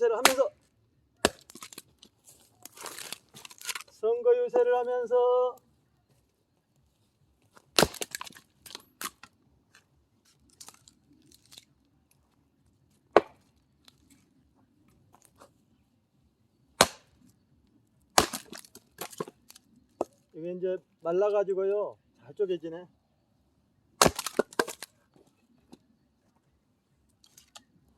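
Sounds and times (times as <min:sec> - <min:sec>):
axe splitting firewood: 0:00.0 - 0:00.5, 0:01.2 - 0:04.0, 0:07.5 - 0:09.3, 0:13.1 - 0:14.0, 0:16.8 - 0:17.4, 0:18.1 - 0:20.2, 0:24.0 - 0:25.3.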